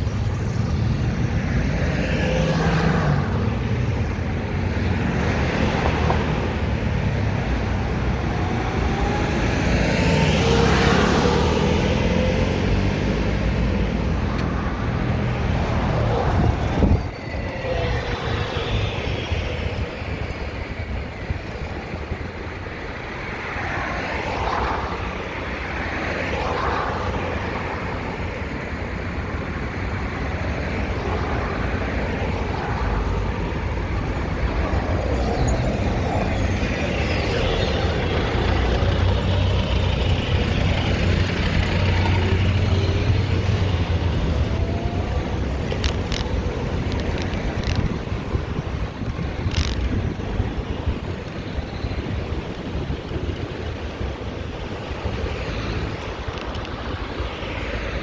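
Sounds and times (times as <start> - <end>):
vehicles passing: 0.0 - 58.0
wind on microphone: 14.7 - 22.4, 30.4 - 58.0.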